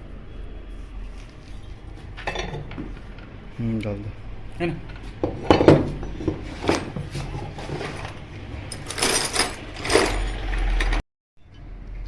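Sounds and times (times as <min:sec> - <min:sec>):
metal parts clinking on workbench: 0:02.2 - 0:02.9, 0:04.8 - 0:11.0.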